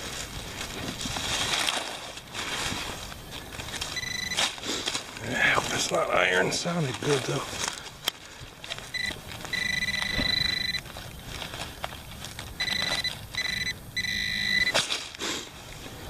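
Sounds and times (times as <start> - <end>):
dirt scraping by hand: 0.0 - 16.0
metal detector high tone: 4.0 - 4.5, 8.9 - 10.8, 12.6 - 14.8.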